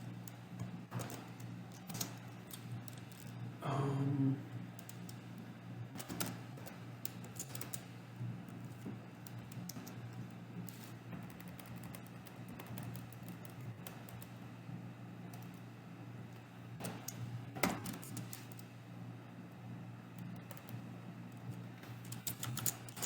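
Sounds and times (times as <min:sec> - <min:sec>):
steady low hum: 0:00.0 - 0:23.0
typing on keyboard: 0:11.2 - 0:14.3.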